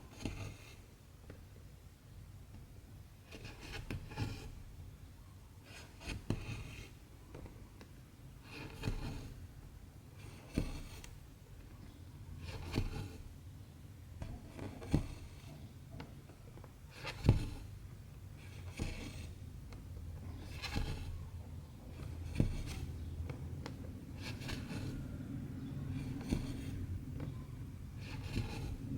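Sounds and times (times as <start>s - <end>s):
thread rasping through fabric: 8.4s - 9.4s, 10.2s - 11.2s, 12.4s - 13.3s, 14.2s - 15.6s, 16.6s - 17.8s, 18.4s - 28.9s.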